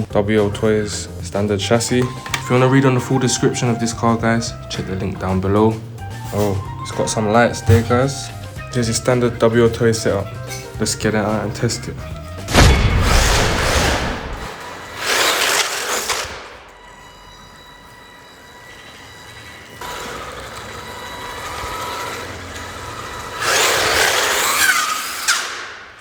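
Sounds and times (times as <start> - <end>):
electric motor whining: 14.3 - 26.0.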